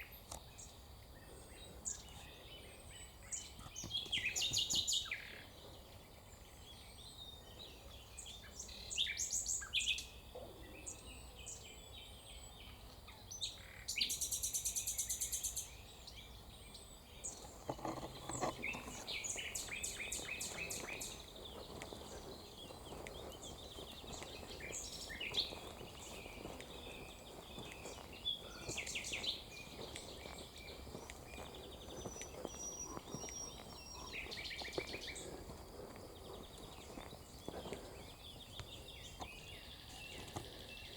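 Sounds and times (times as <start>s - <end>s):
songbirds chirping and singing: 0.0s - 40.9s.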